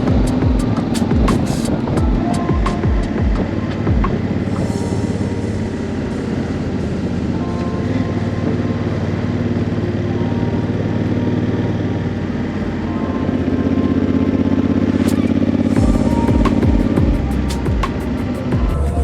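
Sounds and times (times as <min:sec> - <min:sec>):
motorcycle engine running: 0:00.0 - 0:04.5, 0:14.6 - 0:19.0.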